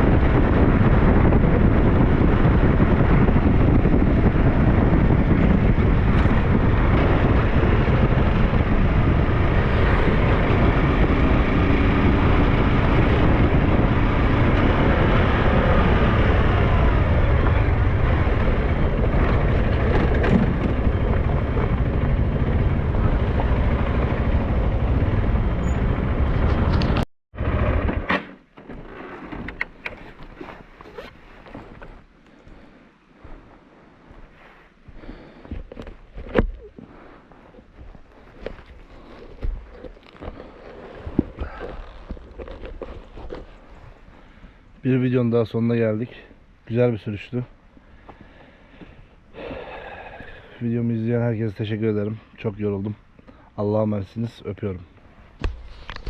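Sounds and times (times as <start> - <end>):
wind rushing over microphone: 0.0 - 28.1
motorcycle engine: 0.0 - 29.6.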